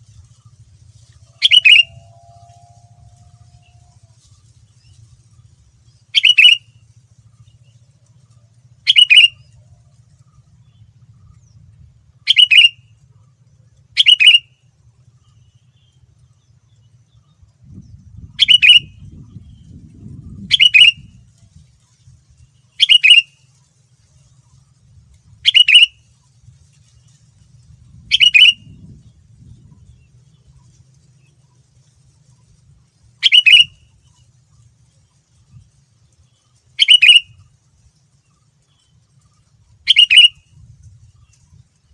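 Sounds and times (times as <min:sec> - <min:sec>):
faint low hum: 0:00.0 - 0:41.9
bird singing loud phrase: 0:01.4 - 0:02.6, 0:06.2 - 0:06.6, 0:08.9 - 0:09.5, 0:12.3 - 0:12.8, 0:14.0 - 0:14.5, 0:18.3 - 0:19.8, 0:20.4 - 0:21.0, 0:22.8 - 0:23.3, 0:25.4 - 0:26.0, 0:28.1 - 0:28.6, 0:33.2 - 0:33.7, 0:36.8 - 0:37.4, 0:39.9 - 0:40.4.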